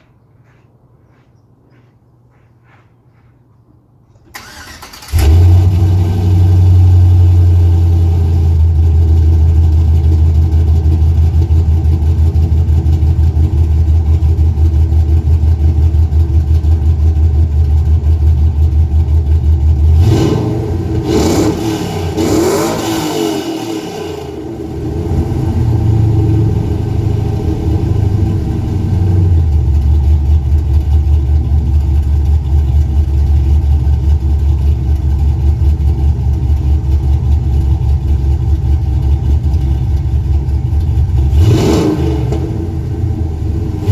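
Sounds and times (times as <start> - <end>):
car starter cranking: 4.2 - 5.8
truck engine idling and revving: 4.4 - 43.9.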